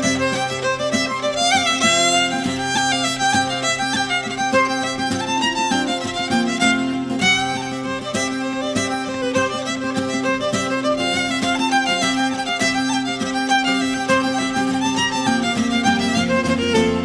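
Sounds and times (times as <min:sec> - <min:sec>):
fiddle playing a fast reel: 0:00.0 - 0:17.0.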